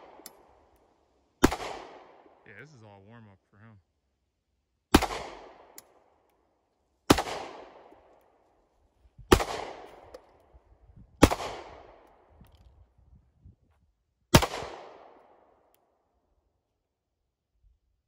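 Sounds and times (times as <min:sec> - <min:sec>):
pistol shots with echo: 0:01.4 - 0:02.4, 0:04.9 - 0:06.1, 0:07.1 - 0:08.0, 0:09.3 - 0:10.2, 0:11.2 - 0:12.0, 0:14.3 - 0:15.4.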